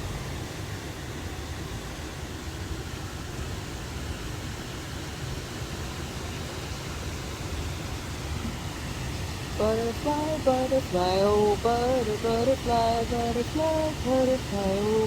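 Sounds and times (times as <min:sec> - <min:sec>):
river water rushing: 0:07.4 - 0:15.0.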